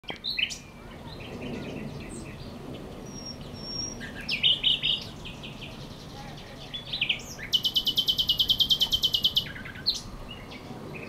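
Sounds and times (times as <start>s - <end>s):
songbirds singing and chirping: 0.0s - 11.0s.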